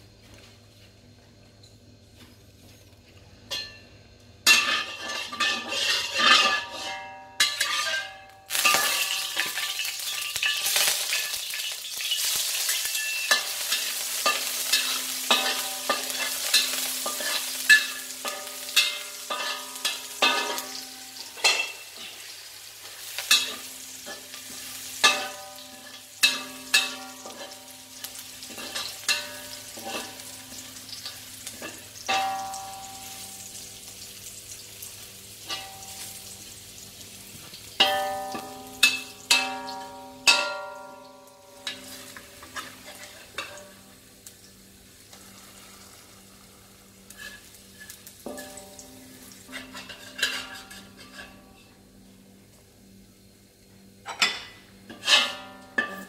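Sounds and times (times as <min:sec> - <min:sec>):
spatula scraping a wok: 0:04.4 - 0:33.5, 0:41.6 - 0:43.8, 0:45.5 - 0:48.7, 0:49.4 - 0:51.8, 0:54.8 - 0:56.0
garlic sizzling in oil: 0:04.4 - 0:56.0.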